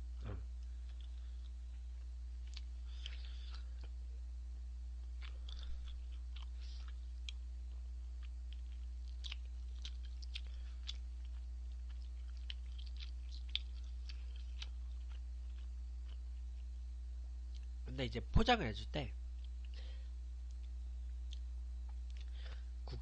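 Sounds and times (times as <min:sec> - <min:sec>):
steady low hum: 0:00.0 - 0:23.0
person chewing with wet mouth clicks: 0:02.4 - 0:04.0, 0:05.1 - 0:07.5, 0:08.2 - 0:16.7, 0:20.4 - 0:22.4.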